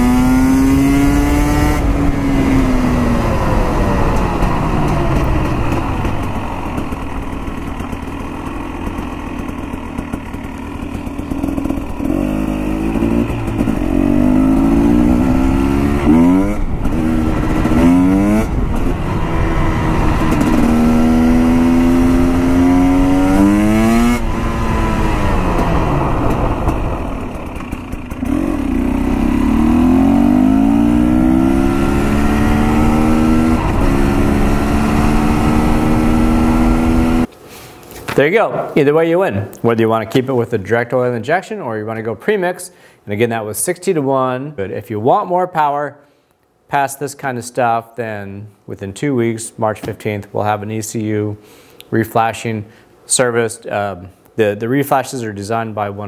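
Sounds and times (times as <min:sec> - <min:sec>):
dirt bike engine accelerating: 0:00.0 - 0:37.3, 0:38.2 - 0:39.5.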